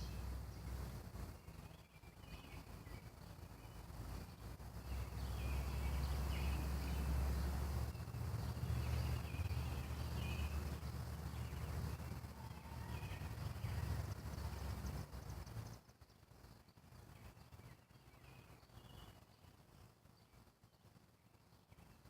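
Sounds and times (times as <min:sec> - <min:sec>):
steady low rumble: 0:00.0 - 0:19.8
bird chirping faintly: 0:00.0 - 0:22.0.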